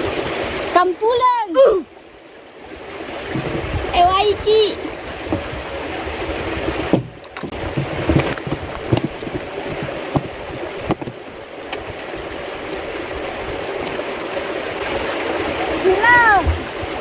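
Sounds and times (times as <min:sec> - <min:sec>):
water running: 0:02.8 - 0:17.0
knocks: 0:06.7 - 0:11.2.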